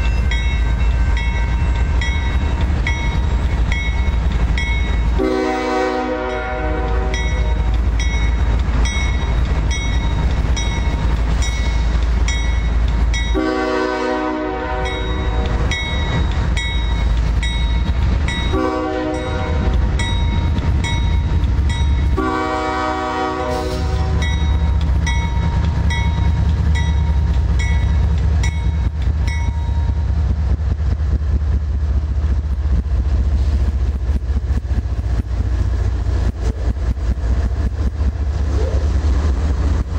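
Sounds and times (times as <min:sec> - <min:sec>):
crossing bell ringing: 0:00.0 - 0:30.1
diesel engines rumbling: 0:00.0 - 0:39.9
locomotive horn: 0:05.2 - 0:07.6, 0:13.3 - 0:15.6, 0:18.5 - 0:19.8, 0:22.1 - 0:24.3.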